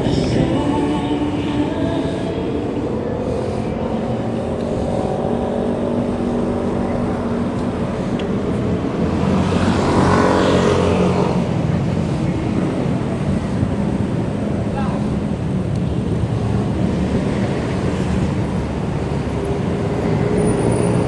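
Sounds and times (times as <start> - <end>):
vehicle passing close: 0.0 - 14.4
traffic and motor noise: 0.0 - 21.0.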